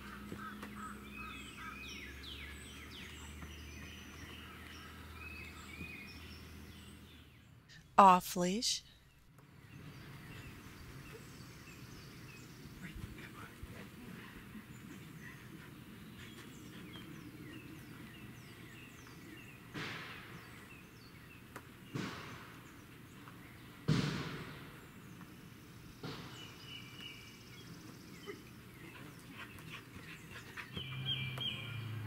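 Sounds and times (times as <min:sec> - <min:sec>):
small birds chirping: 0:00.0 - 0:23.9, 0:24.7 - 0:32.0
sudden loud bangs: 0:23.9 - 0:24.8.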